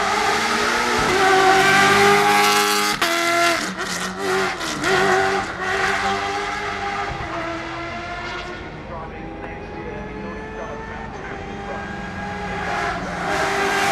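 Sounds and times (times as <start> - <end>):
truck engine revving: 0.0 - 13.9.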